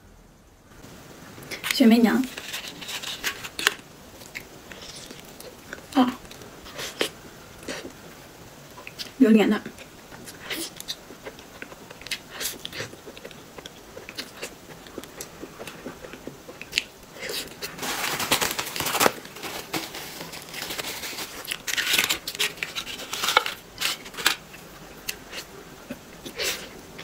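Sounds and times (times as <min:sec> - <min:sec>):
wet chewing and lip-smacking: 0:09.8 - 0:17.7.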